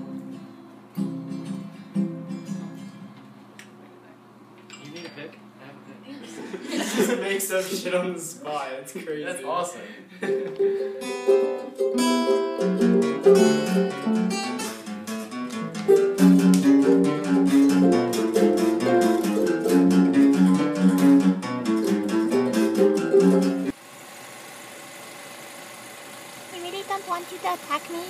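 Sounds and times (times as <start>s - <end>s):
guitar playing: 0.0s - 3.5s, 10.3s - 23.8s
low background noise: 0.0s - 13.9s.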